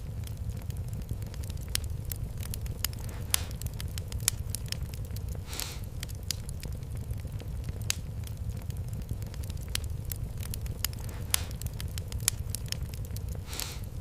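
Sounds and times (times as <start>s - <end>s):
low rumble: 0.0s - 14.0s
wood fire crackling and popping: 0.0s - 14.0s
short hiss: 5.5s - 5.8s.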